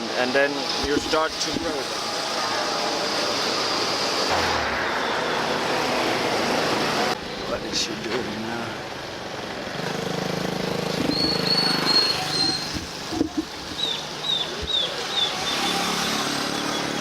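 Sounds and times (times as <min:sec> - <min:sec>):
small engine passing: 0:15.0 - 0:17.0.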